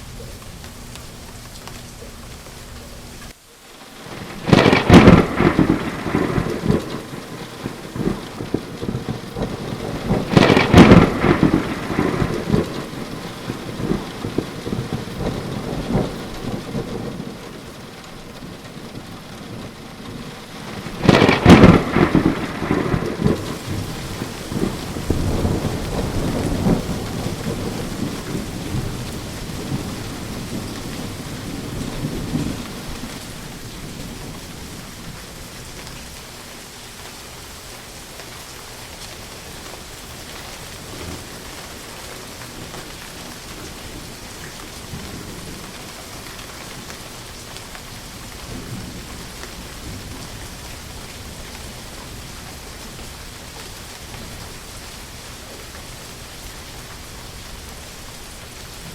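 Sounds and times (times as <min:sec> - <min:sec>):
steady rain: 0:00.0 - 0:58.9
loud thunderclaps and rumbling: 0:04.0 - 0:36.2, 0:42.5 - 0:47.0, 0:47.8 - 0:53.4.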